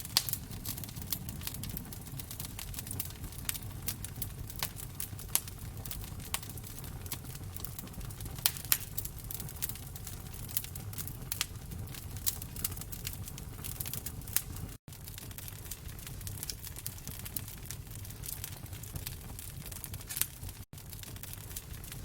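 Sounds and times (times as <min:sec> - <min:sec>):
fire pops and snaps: 0:00.0 - 0:22.0
low rumble of flames: 0:00.0 - 0:22.0
wood fire crackling: 0:00.0 - 0:22.0.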